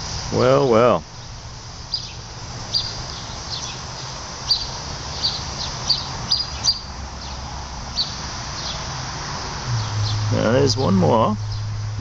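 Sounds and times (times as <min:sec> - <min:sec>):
steady low hum: 0:09.6 - 0:12.0
bird chirping: 0:09.7 - 0:11.7.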